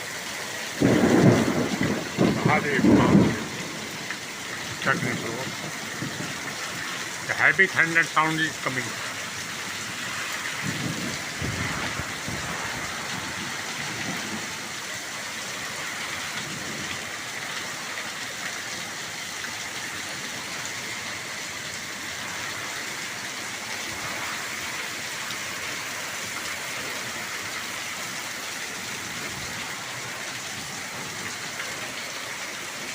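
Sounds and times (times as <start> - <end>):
heavy rain falling: 0.0 - 32.9
low rumble of thunder: 0.8 - 4.0, 4.7 - 6.5, 10.6 - 14.7.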